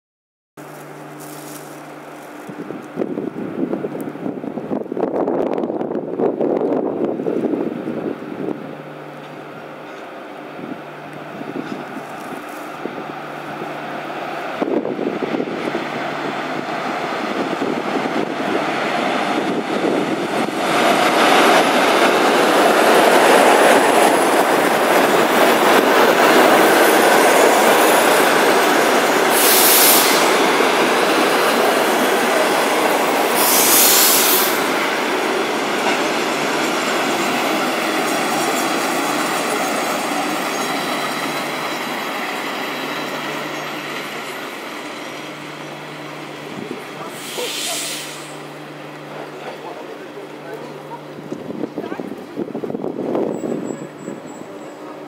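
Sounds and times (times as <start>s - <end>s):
train wheels rumbling and clattering: 0.7s - 55.0s
short loud hisses: 29.3s - 30.4s, 33.4s - 34.7s, 47.1s - 48.4s.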